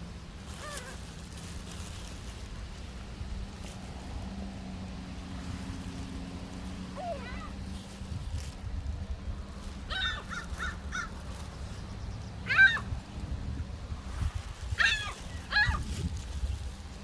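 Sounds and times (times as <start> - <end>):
birds calling: 9.6 - 13.0.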